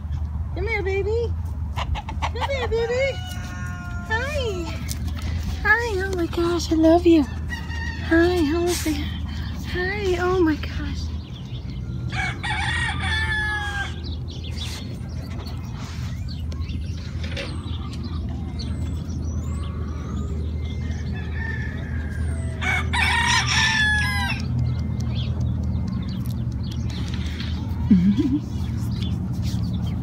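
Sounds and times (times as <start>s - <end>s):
rooster crowing: 3.1s - 4.6s, 7.3s - 8.2s, 12.1s - 14.0s, 20.7s - 24.4s.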